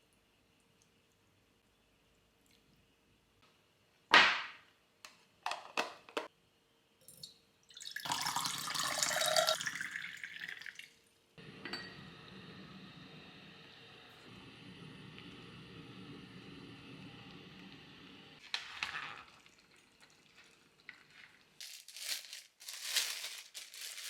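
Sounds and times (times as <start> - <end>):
water running: 7.2 - 24.0.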